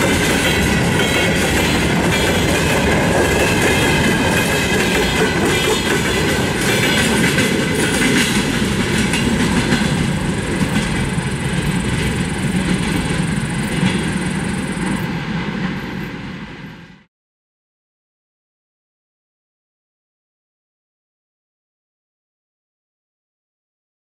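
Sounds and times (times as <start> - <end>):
train wheels clicking over rail joints: 0.0 - 16.7
freight train rumble: 0.0 - 17.1.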